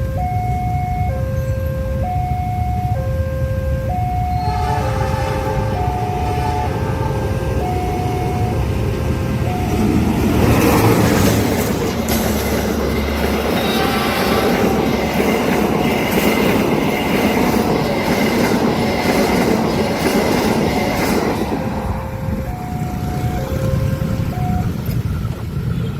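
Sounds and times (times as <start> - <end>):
level crossing alarm two tones: 0.0 - 11.1, 20.6 - 24.9
diesel locomotive running: 0.0 - 25.9
train wheels clacking on rails: 7.3 - 25.9.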